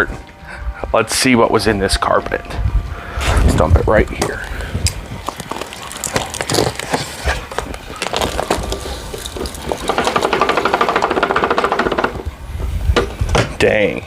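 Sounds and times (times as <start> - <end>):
fast continuous rattle: 8.8 - 12.3.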